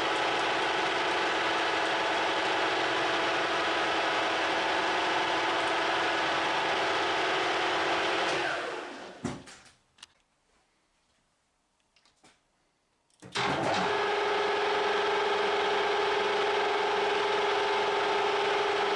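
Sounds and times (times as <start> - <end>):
lathe motor running: 0.0 - 9.1, 13.4 - 18.9.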